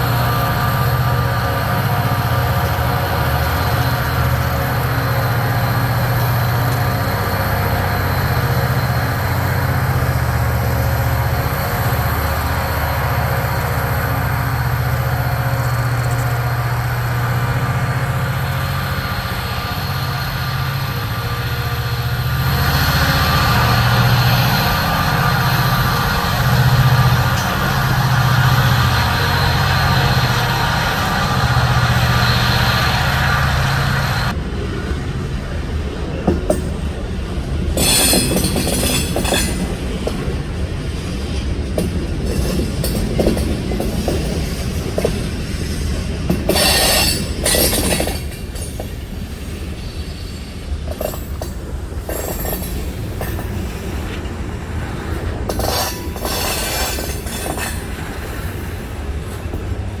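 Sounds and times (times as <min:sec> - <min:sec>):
diesel locomotive engine drone: 0:00.0 - 1:00.0
train wheel clatter: 0:00.0 - 1:00.0
wheel squeal: 0:46.5 - 0:48.8.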